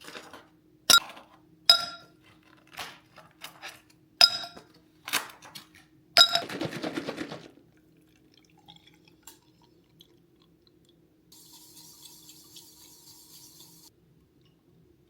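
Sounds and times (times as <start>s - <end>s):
water running: 11.3s - 13.9s.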